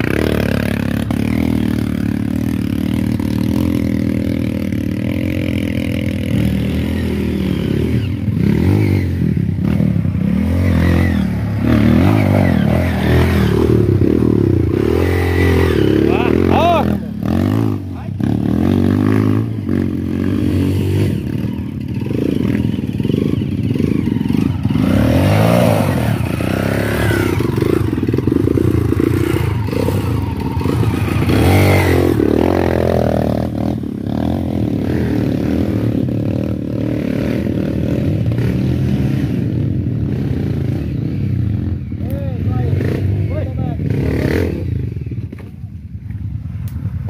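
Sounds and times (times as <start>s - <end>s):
dirt bike engine revving: 0.0s - 45.5s.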